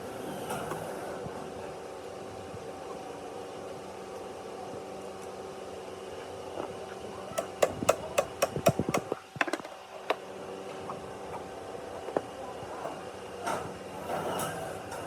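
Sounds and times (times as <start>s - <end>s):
steady hum: 7.2s - 9.2s.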